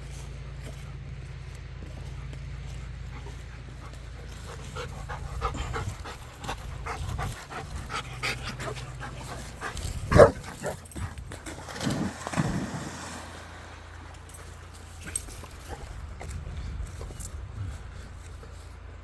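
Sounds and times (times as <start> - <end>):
dog panting and whimpering: 2.9 - 11.2
dog bark: 10.1 - 10.8.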